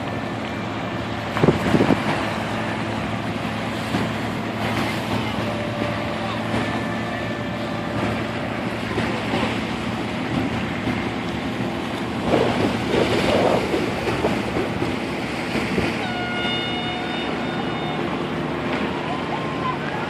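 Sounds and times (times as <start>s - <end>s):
boat engine running: 0.0s - 20.0s
water splashing: 0.0s - 20.0s
wind noise on microphone: 1.3s - 2.3s, 12.1s - 16.2s.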